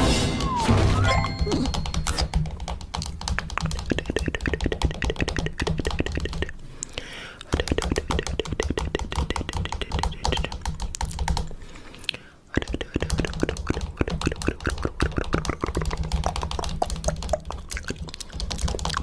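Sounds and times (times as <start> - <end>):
fingernails tapping on camera: 7.6 - 11.4.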